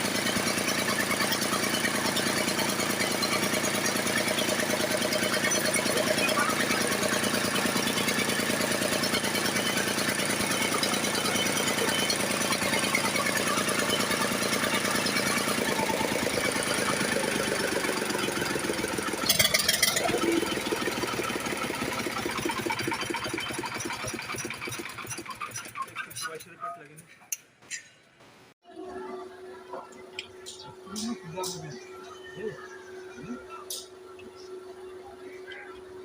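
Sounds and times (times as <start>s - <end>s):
diesel engine knocking: 0.0s - 26.2s.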